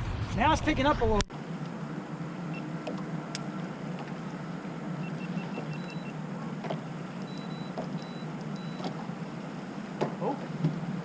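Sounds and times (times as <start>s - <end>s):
boat motor humming: 1.3s - 11.0s
faint electronic beeps: 5.0s - 6.2s, 7.2s - 8.9s.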